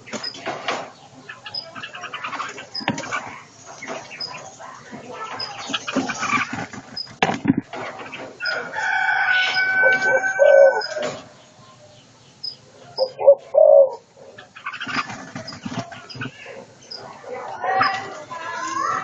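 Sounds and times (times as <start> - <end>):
small birds chirping: 0.0 - 19.0
rooster crowing: 8.4 - 11.3.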